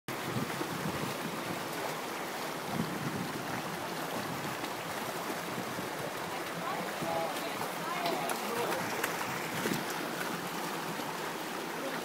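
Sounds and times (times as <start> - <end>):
flowing water rushing: 0.1 - 12.0.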